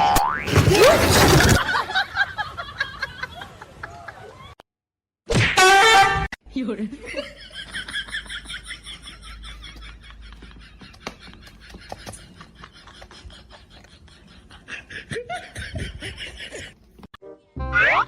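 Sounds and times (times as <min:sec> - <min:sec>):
people laughing: 0:00.8 - 0:04.6, 0:06.9 - 0:16.8.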